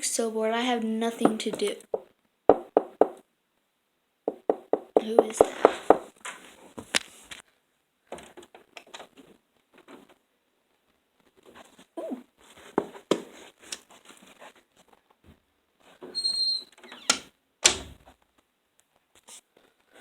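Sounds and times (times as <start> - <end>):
door opening and shutting: 16.2 - 18.0.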